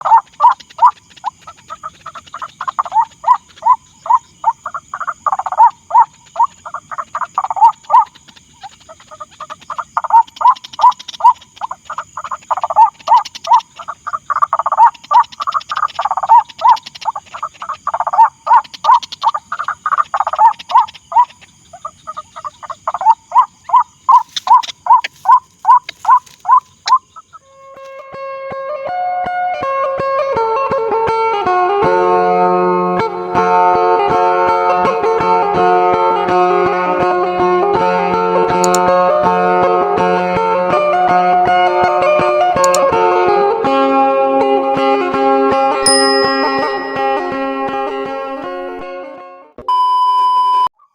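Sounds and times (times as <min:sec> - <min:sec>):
bird croaking calls: 0:00.0 - 0:28.0
high-pitched hum: 0:45.8 - 0:47.9.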